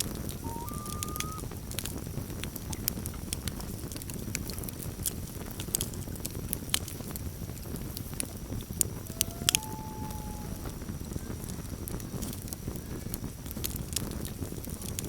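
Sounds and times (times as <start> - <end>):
campfire crackling: 0.0 - 15.0
loon wailing: 0.4 - 1.4, 9.0 - 10.9.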